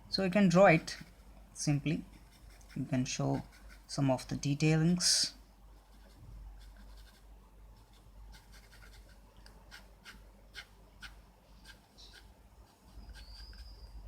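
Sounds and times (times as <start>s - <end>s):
pencil scratching on paper: 2.0s - 4.0s, 5.8s - 13.9s.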